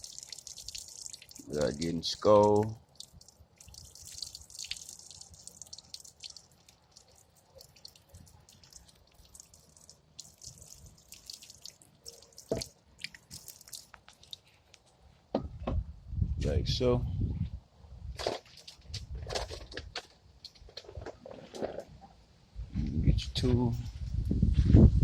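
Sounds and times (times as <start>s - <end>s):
water dripping: 0.0s - 14.8s
water pouring and trickling: 0.0s - 14.8s.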